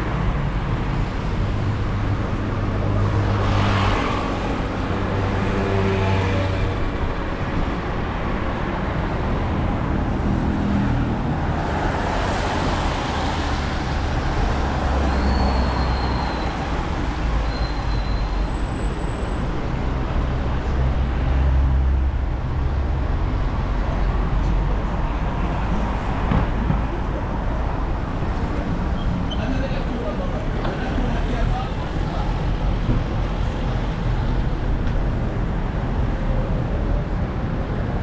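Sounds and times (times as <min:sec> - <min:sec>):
vehicle engines rumbling: 0:00.0 - 0:38.0
tyres hissing on road: 0:11.5 - 0:19.3.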